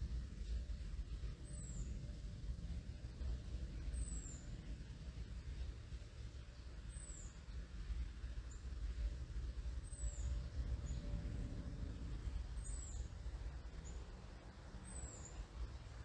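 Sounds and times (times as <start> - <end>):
distant airplane rumble: 0.0 - 16.0.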